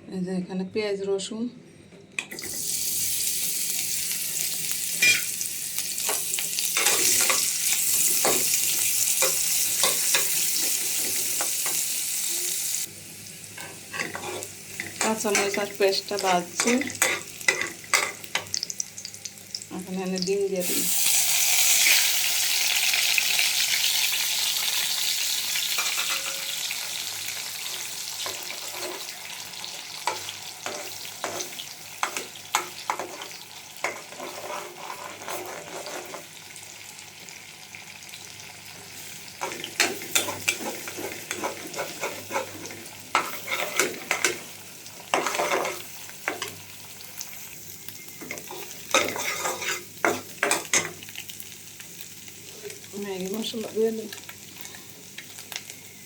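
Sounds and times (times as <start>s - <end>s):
egg sizzling in hot oil: 2.4s - 56.0s
spatula clicking and scraping pan: 6.0s - 11.8s, 13.6s - 18.6s, 27.7s - 29.2s, 30.0s - 36.3s, 39.4s - 44.5s, 45.1s - 46.6s, 48.2s - 51.1s.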